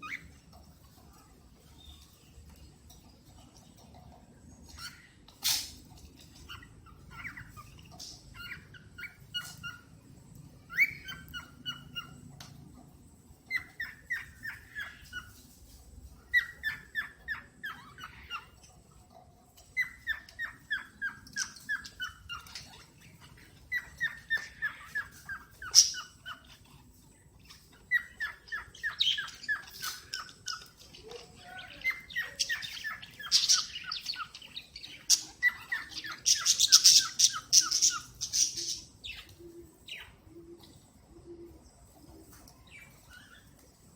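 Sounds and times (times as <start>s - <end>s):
cockatiel chirping: 0.0s - 0.4s, 4.7s - 10.0s, 10.7s - 12.2s, 13.5s - 15.5s, 16.2s - 18.6s, 19.6s - 40.2s
harsh loud bird calls: 19.7s - 40.5s.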